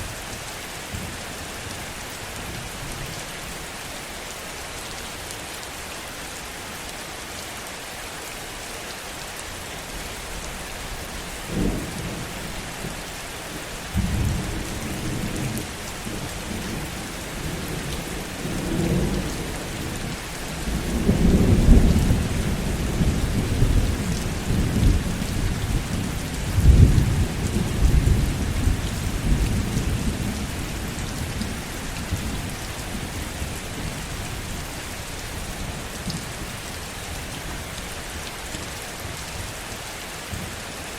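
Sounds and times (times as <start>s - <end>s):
heavy rain: 0.0s - 40.9s
rolling rumble of thunder: 13.9s - 34.3s.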